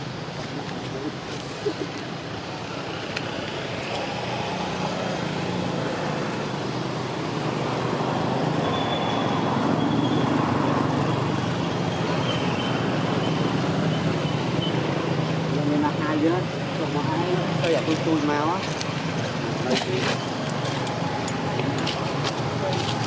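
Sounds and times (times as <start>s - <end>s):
road traffic rumbling: 0.0s - 23.0s.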